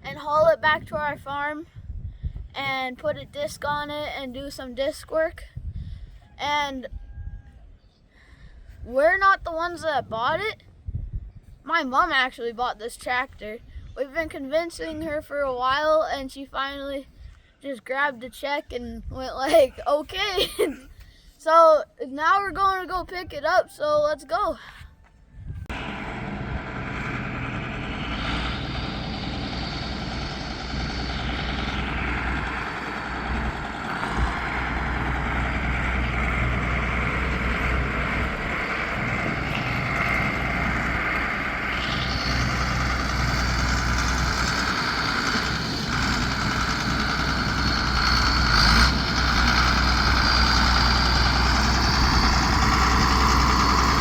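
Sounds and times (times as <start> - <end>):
vehicle engine and road noise: 25.3 - 54.0.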